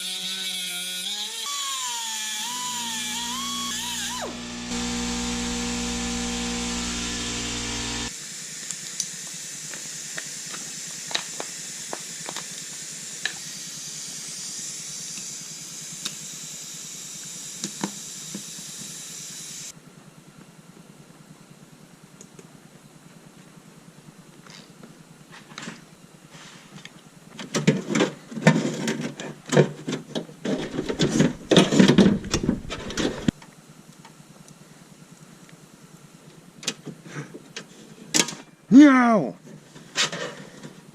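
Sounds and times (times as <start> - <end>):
power drill drilling: 0.3 - 8.2, 30.6 - 33.3
steady hiss: 4.0 - 19.7.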